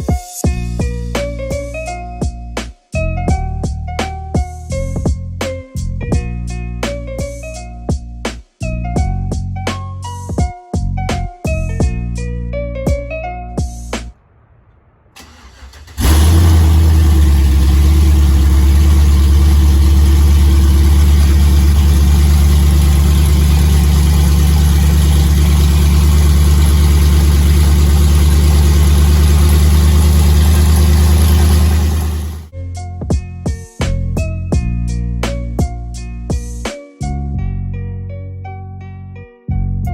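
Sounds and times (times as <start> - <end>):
car engine idling loudly: 15.2 - 32.5.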